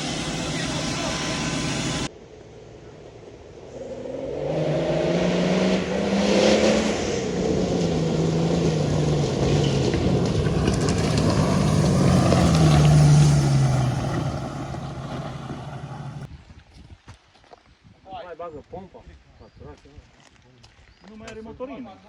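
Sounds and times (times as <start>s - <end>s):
vehicle engine revving: 3.6s - 16.3s.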